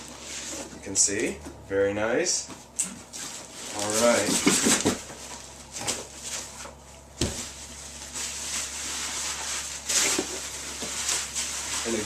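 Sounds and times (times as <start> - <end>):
packing material rustling: 3.1 - 6.6, 7.2 - 12.0.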